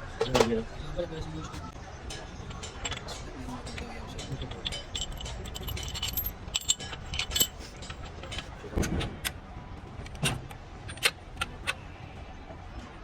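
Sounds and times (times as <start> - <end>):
metallic clinks of hand tools: 2.4 - 8.6.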